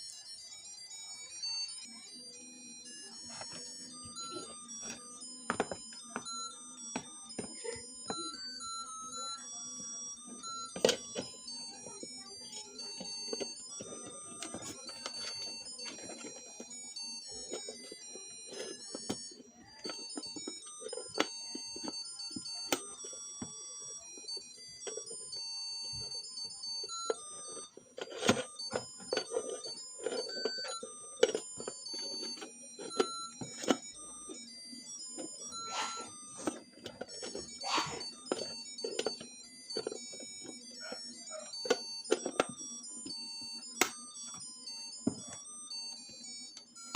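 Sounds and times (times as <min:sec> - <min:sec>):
electronic beeping melody: 0:00.0 - 0:46.9.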